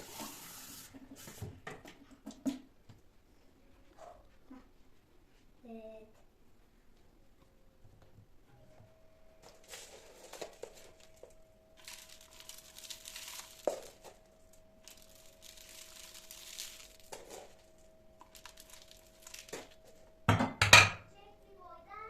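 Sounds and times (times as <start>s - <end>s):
faint steady hum: 0.0s - 22.0s
crinkling plastic material: 9.4s - 20.2s.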